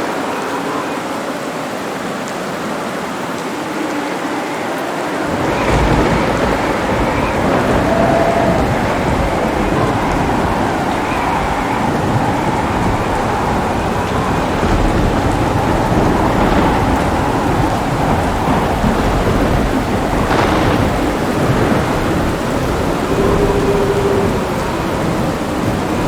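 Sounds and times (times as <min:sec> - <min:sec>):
heavy rain falling: 0:00.0 - 0:26.0
low rolling thunder: 0:03.8 - 0:26.0
sharp crackles: 0:14.6 - 0:24.4.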